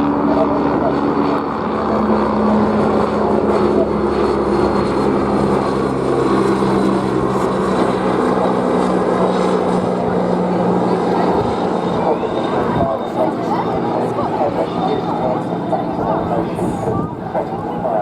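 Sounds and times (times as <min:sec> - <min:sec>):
propeller aircraft engine drone: 0:00.0 - 0:18.0.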